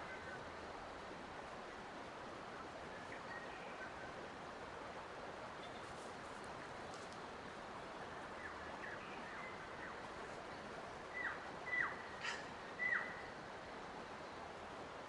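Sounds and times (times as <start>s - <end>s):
outdoor ambience hiss: 0.0s - 15.0s
bird whistled calls: 11.2s - 13.2s.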